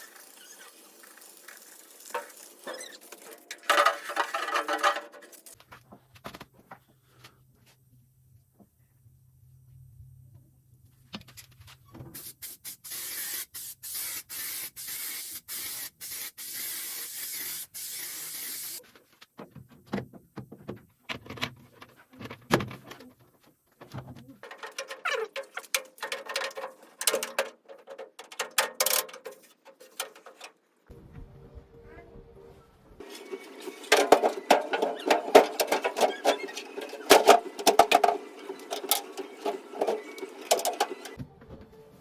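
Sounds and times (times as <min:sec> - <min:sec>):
metal knocks and scraping taps: 0:23.8 - 0:30.6.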